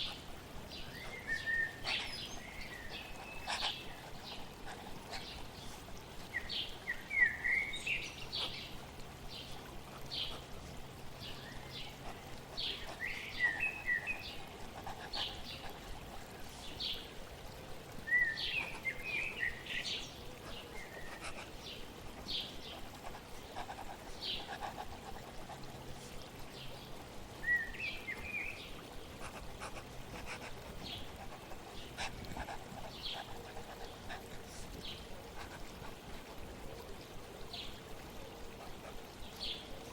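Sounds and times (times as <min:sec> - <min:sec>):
flowing water: 0:00.0 - 0:39.9
songbirds chirping and twittering: 0:00.0 - 0:39.9.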